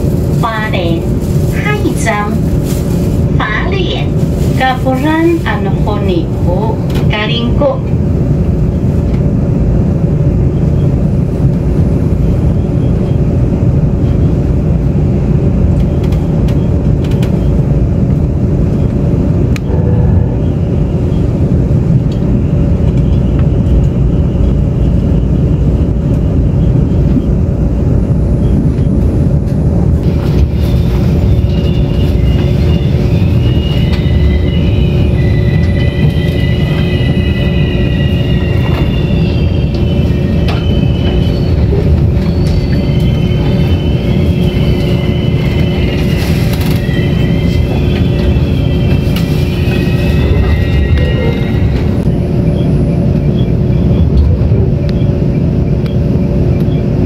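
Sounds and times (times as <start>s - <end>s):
train wheels rumbling on track: 0.0s - 57.0s
high metallic squeal: 30.4s - 52.2s.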